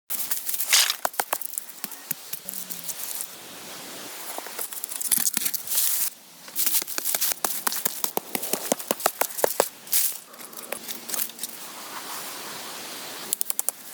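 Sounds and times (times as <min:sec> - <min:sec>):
dry rustling and tearing: 0:00.2 - 0:01.7
sharp clicks and snaps: 0:13.3 - 0:13.8.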